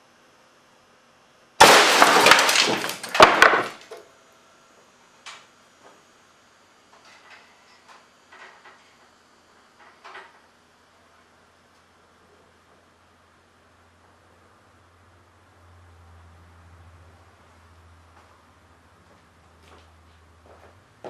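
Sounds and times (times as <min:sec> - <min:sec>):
sharp crack: 0:01.6 - 0:03.9.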